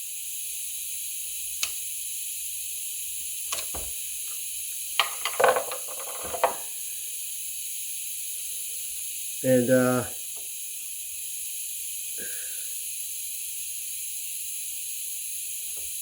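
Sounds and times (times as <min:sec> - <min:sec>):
clicking and scraping: 0:05.0 - 0:06.6.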